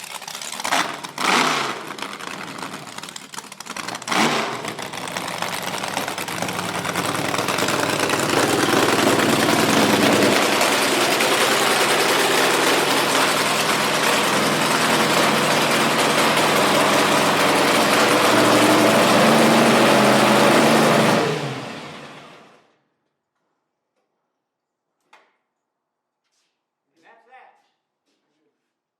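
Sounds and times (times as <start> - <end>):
dragster engine running: 0.0 - 22.6.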